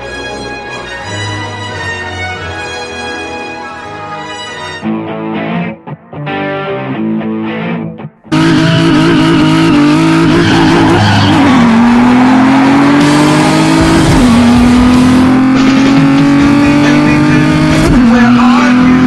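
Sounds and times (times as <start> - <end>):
race car engine revving: 8.3 - 19.0.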